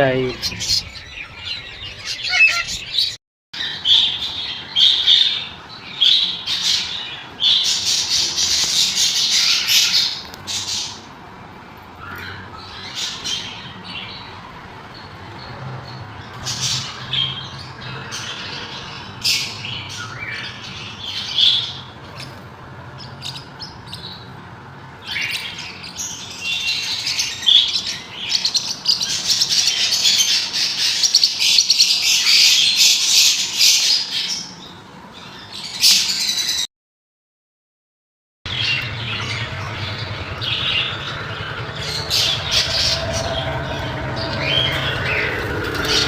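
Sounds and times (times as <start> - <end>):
parrots squawking and chattering: 0.3 - 11.1, 38.5 - 46.0.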